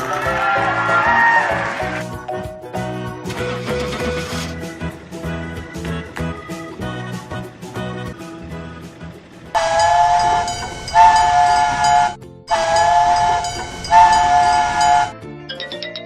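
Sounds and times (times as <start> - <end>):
upbeat background music: 0.0 - 16.0
cartoon train whistle: 0.1 - 2.1, 9.6 - 15.2.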